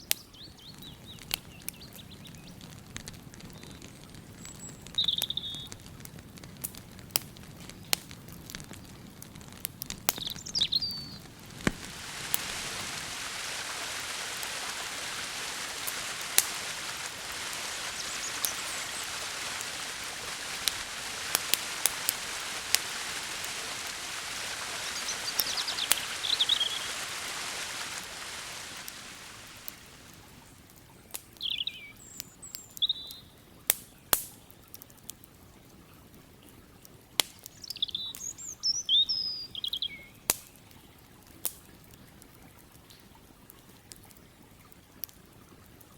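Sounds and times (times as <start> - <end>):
small birds chirping: 0.0 - 2.7, 3.4 - 5.8, 10.0 - 33.4, 37.5 - 41.0
campfire crackling and popping: 0.0 - 45.9
steady rushing hiss: 6.2 - 30.7.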